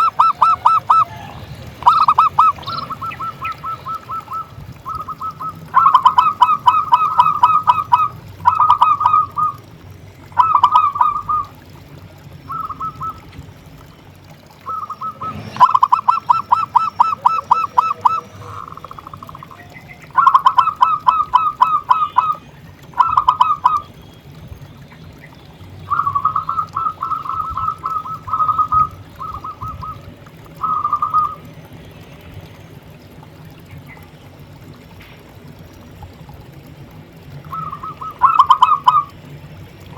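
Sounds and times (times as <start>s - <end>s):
dove cooing: 0.0s - 13.4s, 14.5s - 24.0s, 25.9s - 31.6s, 37.3s - 39.2s.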